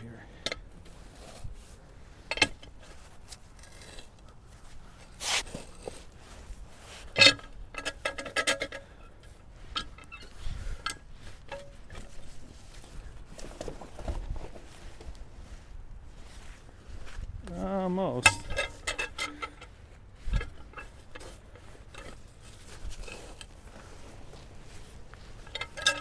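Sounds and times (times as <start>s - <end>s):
log scraping: 0.8s - 26.0s
metal clanks and knocks: 18.2s - 19.7s, 20.4s - 26.0s.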